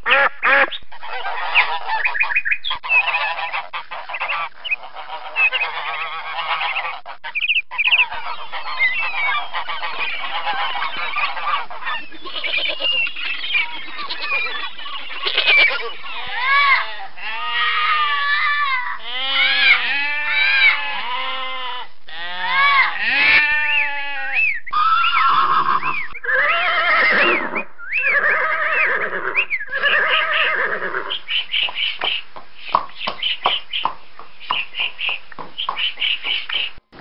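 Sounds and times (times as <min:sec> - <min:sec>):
animal cries rising and falling: 0:15.2 - 0:31.1.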